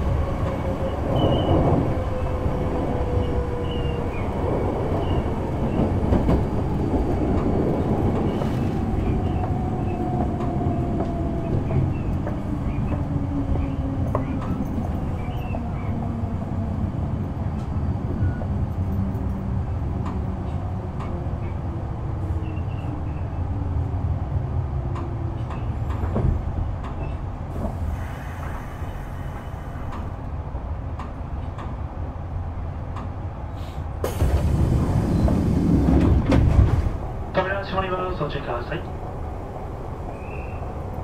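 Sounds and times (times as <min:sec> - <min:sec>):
brief air hiss: 0:33.5 - 0:34.5.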